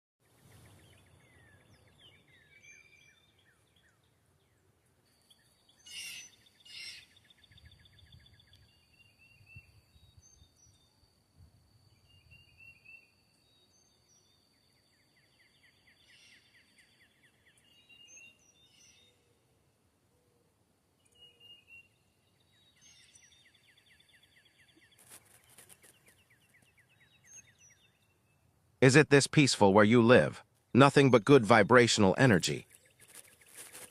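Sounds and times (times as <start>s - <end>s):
birds chirping and trilling: 0.3s - 10.9s, 12.0s - 19.3s, 21.0s - 28.5s.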